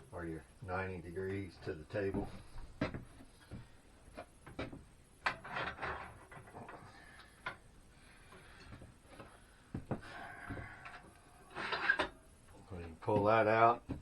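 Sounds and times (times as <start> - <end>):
metal and plastic parts scraping: 4.6 - 7.0, 10.7 - 12.2.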